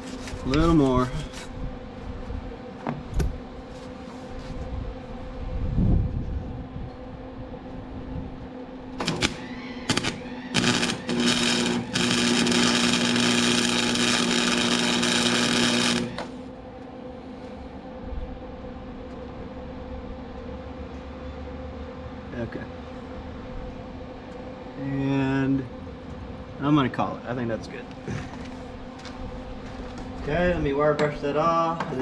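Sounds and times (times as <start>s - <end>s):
power tool motor whirring: 9.0s - 16.4s.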